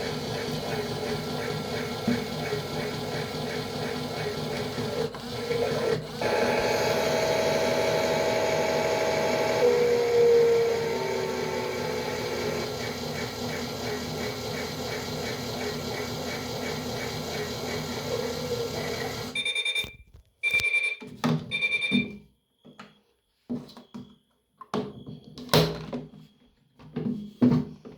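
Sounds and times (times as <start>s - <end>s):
small electric motor whirring: 5.4s - 19.3s
electronic beeps: 19.3s - 22.2s.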